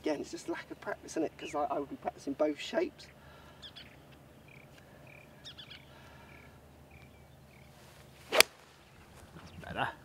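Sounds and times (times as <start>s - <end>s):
faint bird calls: 3.0s - 10.0s.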